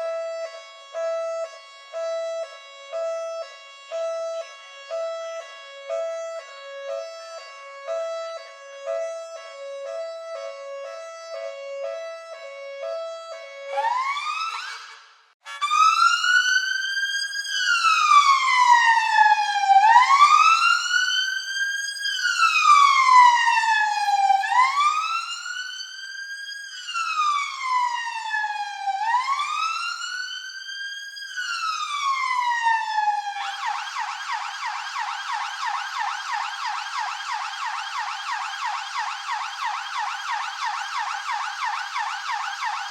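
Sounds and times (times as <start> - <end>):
two-tone hi-lo siren: 0.0 - 42.9
wailing siren: 0.0 - 42.9
fast yelp siren: 13.7 - 42.9
rising siren sweep: 31.6 - 42.9.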